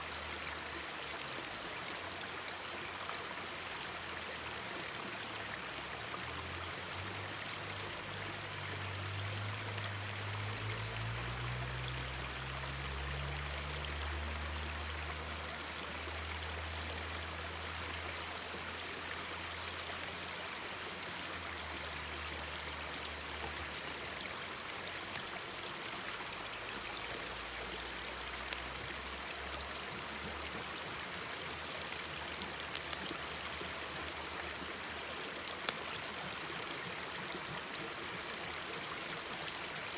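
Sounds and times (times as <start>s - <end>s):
stream babbling over rocks: 0.0s - 39.9s
bonfire popping: 32.6s - 33.4s.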